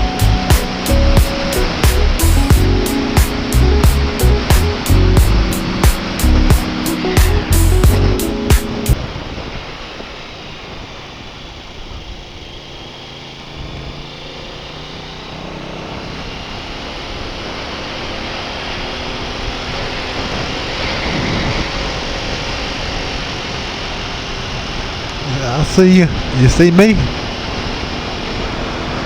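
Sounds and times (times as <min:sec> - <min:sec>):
motorcycle engine: 0:00.0 - 0:09.0, 0:12.6 - 0:25.2.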